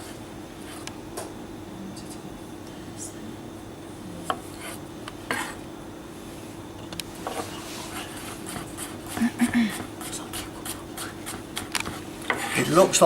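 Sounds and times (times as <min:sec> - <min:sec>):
knife scraping on board: 0:04.3 - 0:05.6, 0:09.8 - 0:12.8.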